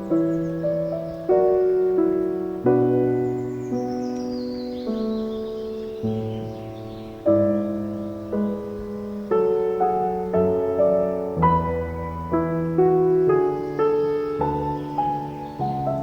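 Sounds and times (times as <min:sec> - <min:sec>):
soft solo piano music: 0:00.0 - 0:16.0.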